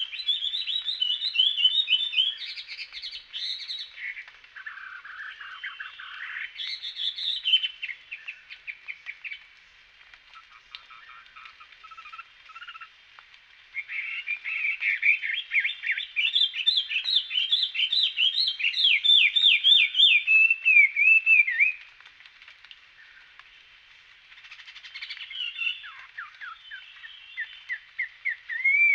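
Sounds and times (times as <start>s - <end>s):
songbird singing: 0.0s - 13.0s, 13.7s - 22.0s, 22.9s - 28.9s.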